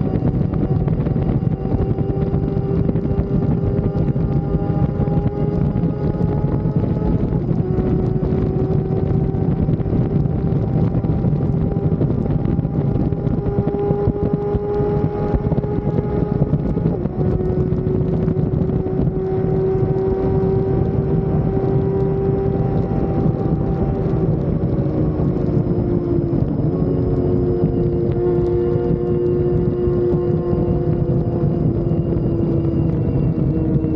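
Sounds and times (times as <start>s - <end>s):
motorcycle engine cruising: 0.0s - 33.9s
wind rushing over microphone: 0.0s - 33.9s.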